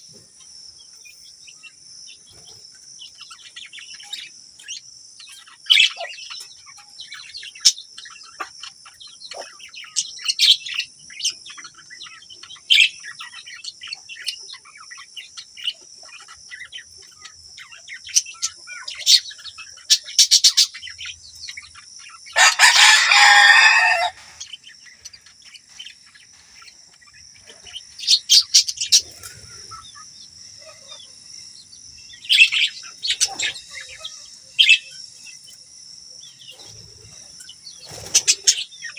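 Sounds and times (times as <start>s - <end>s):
budgerigars chirping and chattering: 0.0s - 38.9s
loud harsh bird call: 22.2s - 24.7s.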